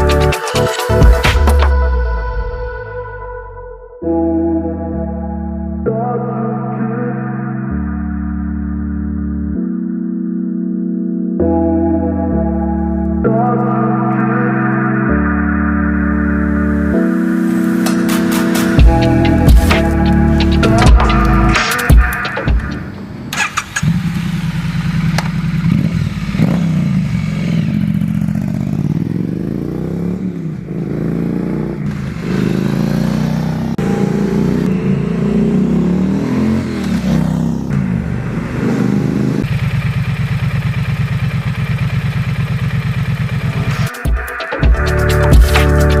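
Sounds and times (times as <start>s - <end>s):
motorcycle engine revving and idling: 18.5s - 44.0s.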